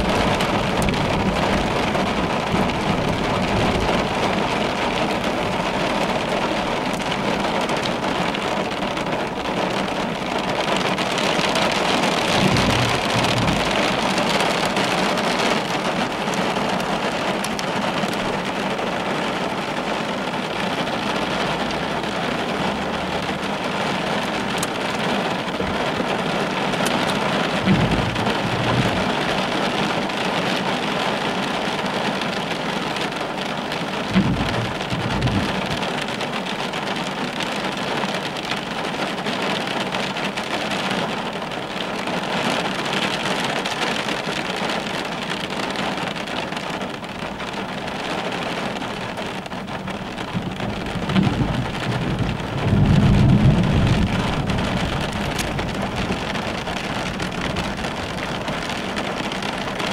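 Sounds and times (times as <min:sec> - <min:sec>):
low thunder rumbles: 0:00.0 - 0:18.8, 0:22.7 - 0:30.1, 0:34.0 - 0:37.2, 0:48.6 - 0:59.9
heavy rain on car windshield: 0:00.0 - 0:59.9.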